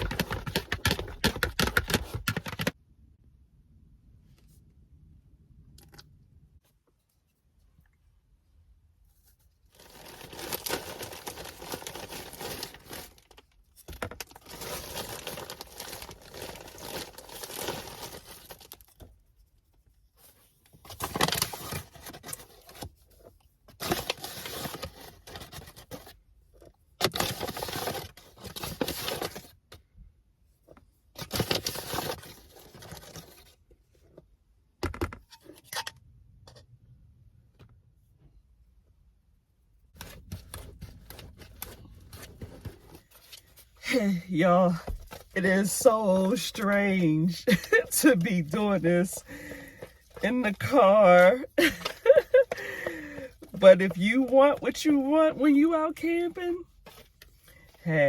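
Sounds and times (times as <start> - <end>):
packaging rustling and scraping: 0.0 - 2.8, 9.2 - 19.1, 20.2 - 29.6, 31.2 - 34.2, 40.0 - 54.7, 56.7 - 57.9.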